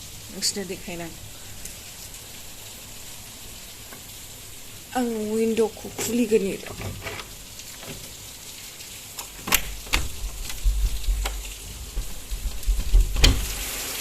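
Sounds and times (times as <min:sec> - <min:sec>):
steady crackling hiss: 0:00.0 - 0:14.0
window latch clicks and knocks: 0:09.3 - 0:12.2, 0:12.8 - 0:13.5
low rumble: 0:09.7 - 0:13.3.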